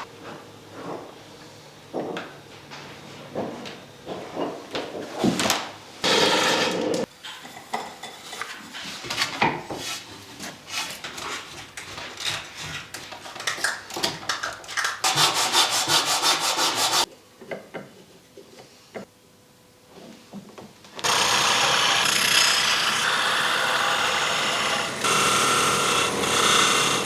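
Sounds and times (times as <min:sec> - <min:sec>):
hand tools scraping wood: 0:06.0 - 0:07.1, 0:15.1 - 0:17.1.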